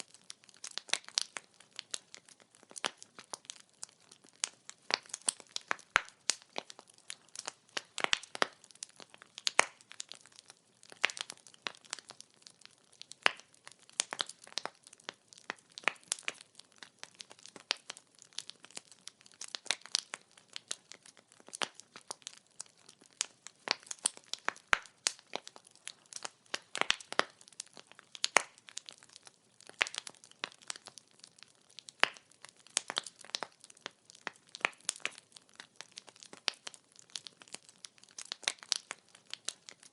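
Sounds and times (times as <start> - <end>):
logs crackling and popping: 0.0 - 39.9.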